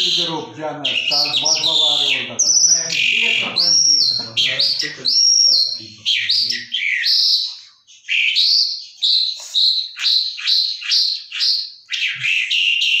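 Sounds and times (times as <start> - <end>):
caged bird whistling song: 0.0 - 13.0.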